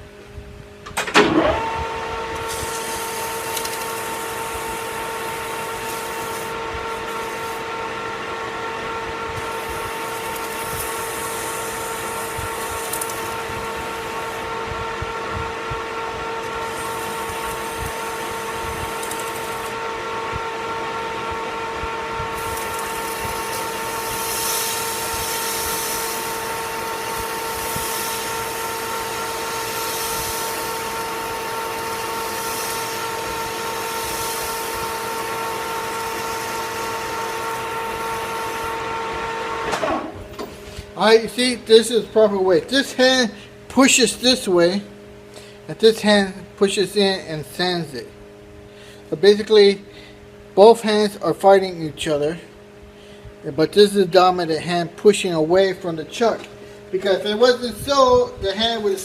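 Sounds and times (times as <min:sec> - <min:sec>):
metal lathe motor whining: 0:01.0 - 0:42.2
sanding hiss: 0:02.5 - 0:07.6, 0:09.4 - 0:14.5, 0:16.6 - 0:19.7, 0:22.4 - 0:38.8.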